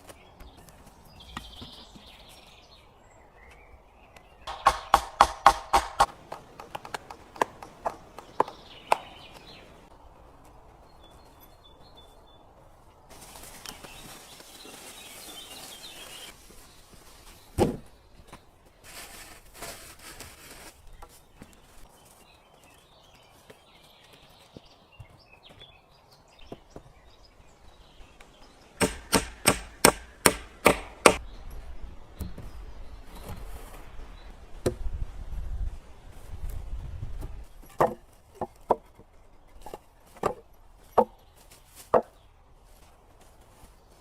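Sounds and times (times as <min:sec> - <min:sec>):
axe chopping wood: 0:04.5 - 0:09.2, 0:28.8 - 0:31.2
wood being handled rustling: 0:06.1 - 0:25.7, 0:36.1 - 0:44.0.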